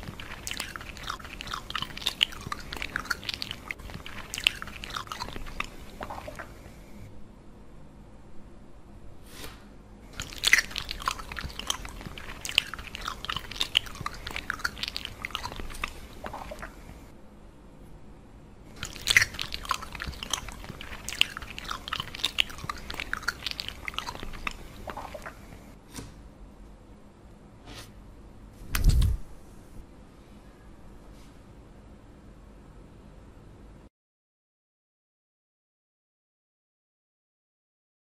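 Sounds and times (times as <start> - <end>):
crunchy chewing: 0.0 - 6.8, 10.1 - 17.1, 18.7 - 25.7.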